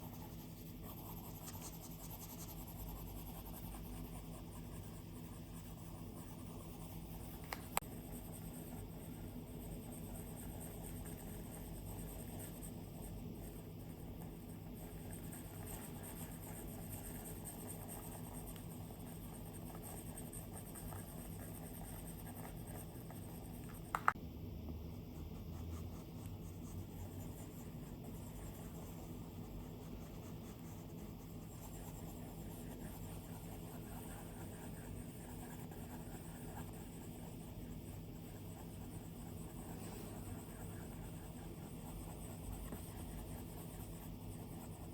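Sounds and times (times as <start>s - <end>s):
stylus scratching on screen: 0.0s - 24.1s
stylus tip tapping: 23.6s - 24.2s.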